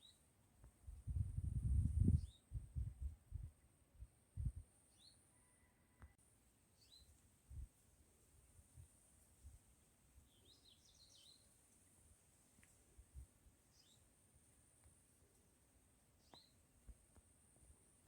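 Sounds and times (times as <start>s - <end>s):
small birds chirping: 0.0s - 0.3s, 6.8s - 7.2s, 10.2s - 11.8s, 13.6s - 14.1s, 16.2s - 16.6s.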